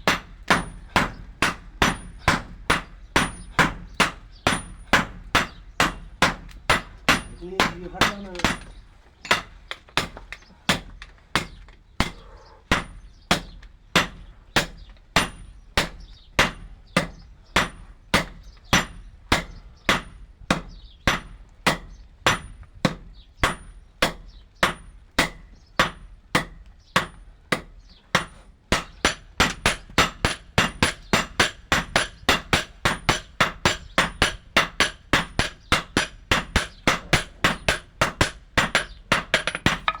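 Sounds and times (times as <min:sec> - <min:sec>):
hammer striking metal on anvil: 0:28.8 - 0:40.0.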